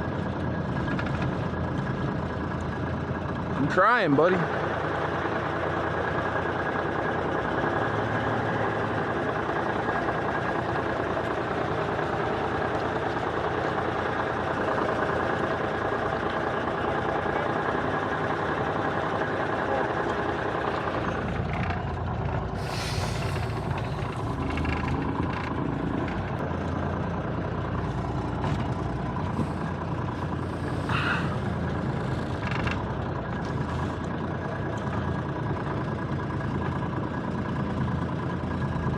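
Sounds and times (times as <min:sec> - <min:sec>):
truck diesel engine drone: 0:00.0 - 0:38.9
air brake hisses: 0:22.6 - 0:24.0.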